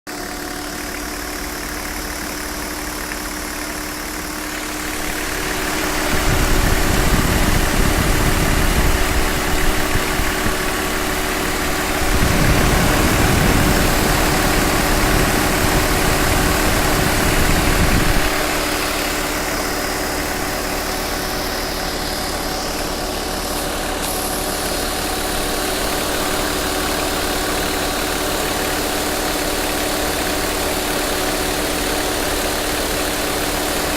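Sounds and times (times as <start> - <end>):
diesel engine idling: 0.1 - 33.9
radiator cooling fan: 0.5 - 33.9
rushing rumble: 4.6 - 20.4.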